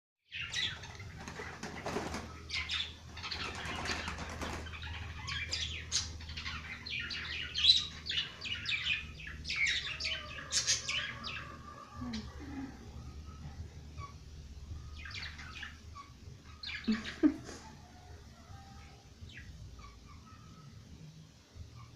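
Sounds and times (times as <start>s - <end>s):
birds chirping: 0.3s - 21.9s
wings flapping: 0.8s - 5.0s.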